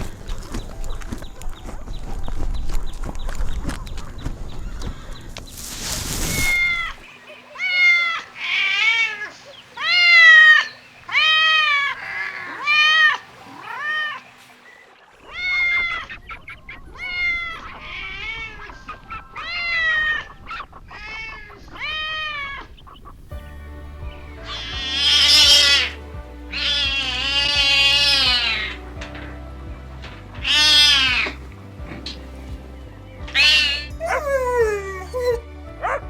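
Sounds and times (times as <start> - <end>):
kittens meowing: 6.4 - 7.0, 7.6 - 14.2, 16.9 - 20.3, 24.4 - 28.9, 30.4 - 32.2, 33.2 - 35.4.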